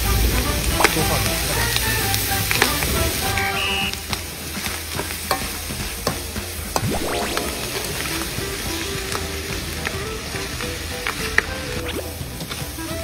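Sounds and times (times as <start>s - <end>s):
food sizzling in a wok: 0.0s - 13.0s
metal utensil clinking on pan: 5.3s - 6.2s.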